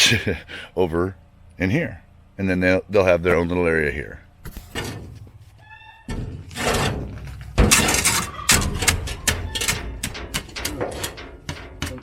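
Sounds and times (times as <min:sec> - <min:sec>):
rapid knocks clicks and rattles: 0:07.6 - 0:12.0.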